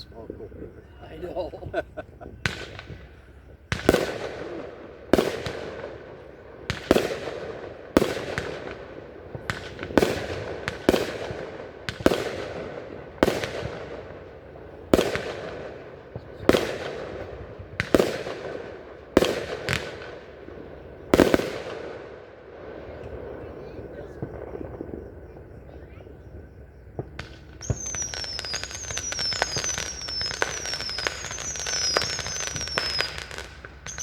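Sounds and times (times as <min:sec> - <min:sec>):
fireworks bangs with echo: 0:01.6 - 0:34.0.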